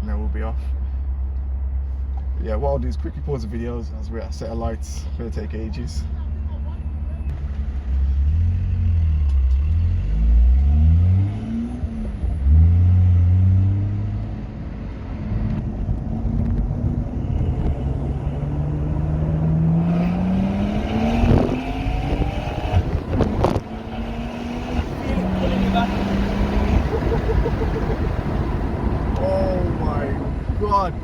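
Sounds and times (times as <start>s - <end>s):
car engine accelerating: 5.3s - 31.0s
exhaust cracks: 21.1s - 31.0s.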